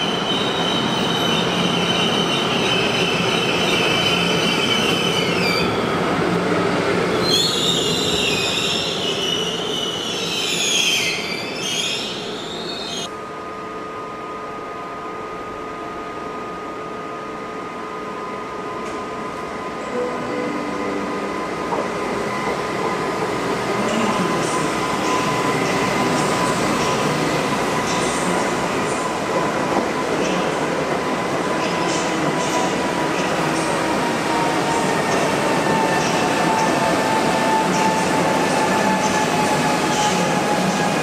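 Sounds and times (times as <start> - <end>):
train wheels squealing: 0.0 - 5.8, 7.1 - 13.1
electric train whine: 0.0 - 41.0.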